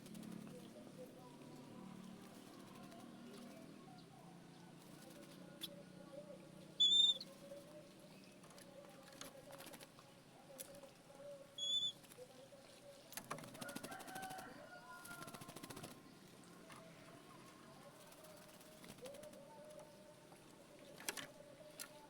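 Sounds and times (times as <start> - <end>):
bird whistled note: 6.8 - 7.2
faint bird warble: 11.6 - 12.3.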